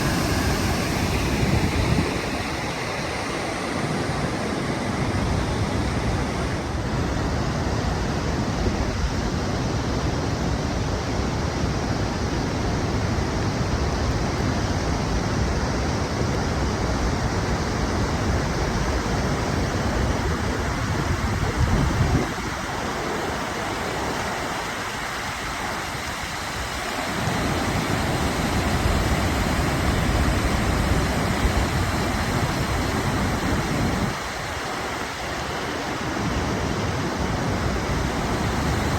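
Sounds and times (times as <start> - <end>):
wind buffeting microphone: 0.0 - 7.2, 19.6 - 23.1
waterfall roaring: 0.0 - 10.0, 16.2 - 38.9.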